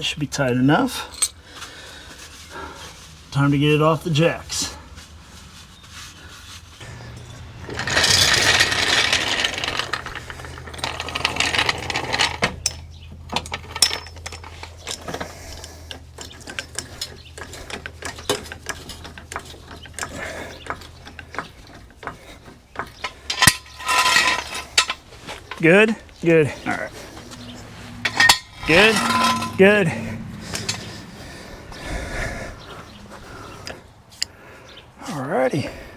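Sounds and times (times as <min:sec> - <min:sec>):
floor jack ratcheting: 0:06.8 - 0:31.2
metal knocks: 0:16.4 - 0:31.1.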